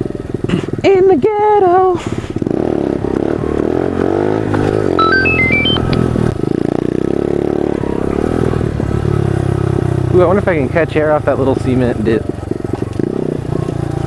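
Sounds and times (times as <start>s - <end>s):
high stepped melody notes: 5.0s - 6.6s.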